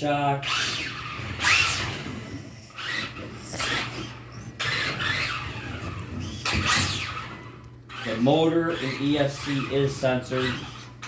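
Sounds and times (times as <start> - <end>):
electric motor whining: 0.4 - 11.0
tires squealing on floor: 0.5 - 2.2, 2.8 - 10.9.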